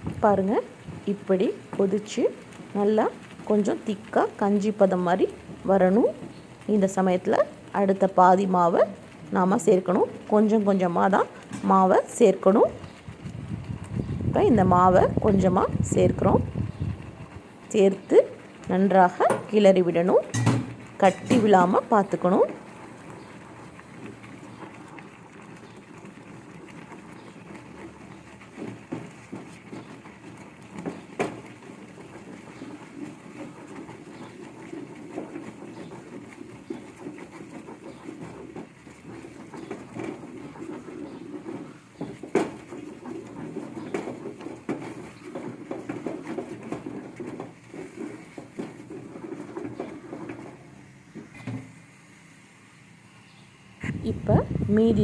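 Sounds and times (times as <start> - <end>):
spoon stirring porridge in a pot: 0.3 - 14.0, 26.6 - 51.4
steady low rumble: 53.8 - 55.0.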